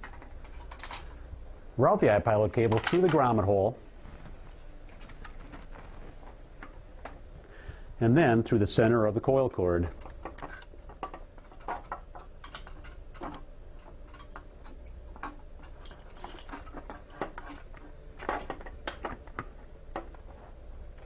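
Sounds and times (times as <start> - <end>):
faint steady hum: 0.0 - 21.0
cable rustling and clicking: 4.0 - 7.2, 9.8 - 21.0.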